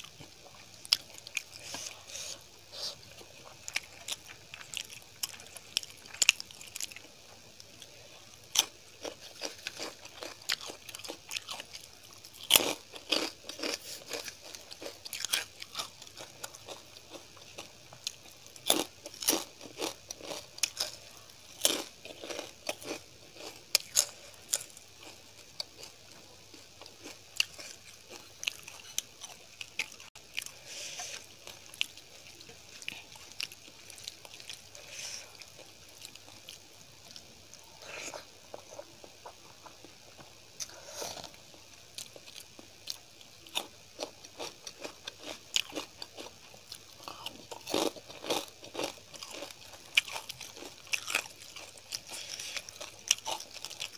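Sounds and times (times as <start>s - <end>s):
person chewing and crunching food: 0.0s - 53.9s.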